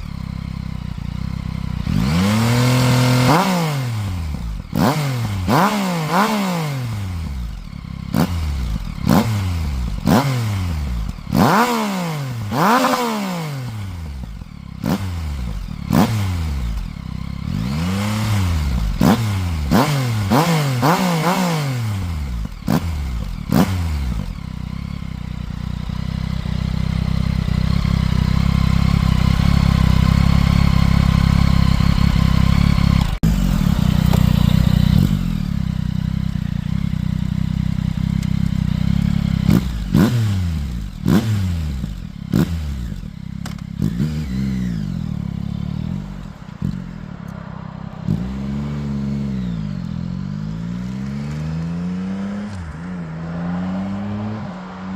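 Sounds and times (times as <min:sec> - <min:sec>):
motorcycle engine revving: 0:00.0 - 0:54.9
exhaust cracks: 0:27.6 - 0:40.0, 0:40.7 - 0:48.3.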